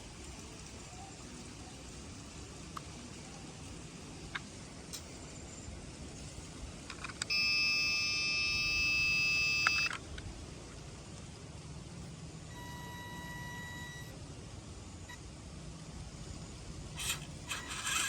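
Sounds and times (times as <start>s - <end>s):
electronic beep tone: 7.3s - 9.9s, 12.5s - 14.1s.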